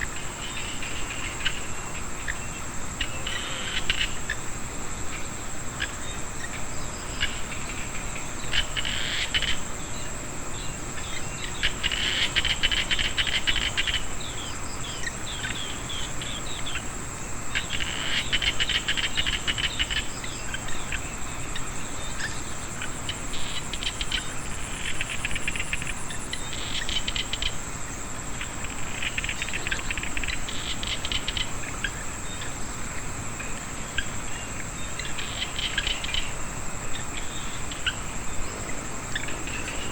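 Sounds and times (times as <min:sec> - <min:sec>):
frogs calling in clicking trills: 0:00.0 - 0:39.9
high-pitched insect drone: 0:00.0 - 0:39.9.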